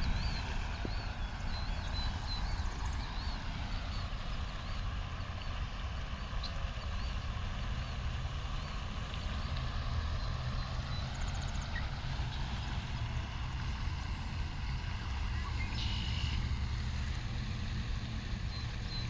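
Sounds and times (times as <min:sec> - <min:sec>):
low outdoor rumble: 0:00.0 - 0:19.0
faint high bird chirps: 0:15.4 - 0:16.4.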